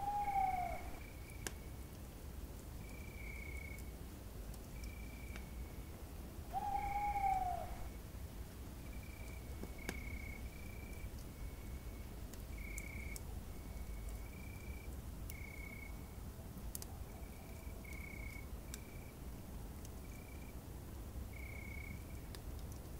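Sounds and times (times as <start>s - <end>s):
owl hoot: 0.0s - 1.1s, 6.5s - 7.9s
campfire crack: 0.6s - 6.2s, 8.4s - 20.1s, 21.3s - 22.9s.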